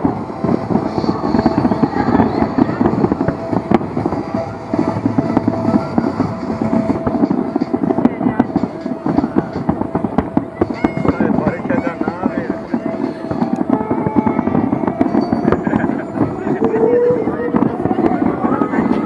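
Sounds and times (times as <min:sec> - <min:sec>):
fireworks bangs and crackles: 0:00.0 - 0:19.0
sharp firework crack: 0:00.0 - 0:19.0.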